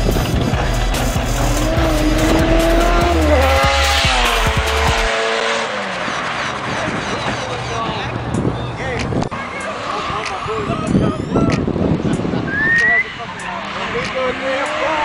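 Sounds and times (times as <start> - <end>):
thumping bass music: 0.0 - 5.1
car accelerating and passing: 0.0 - 15.0.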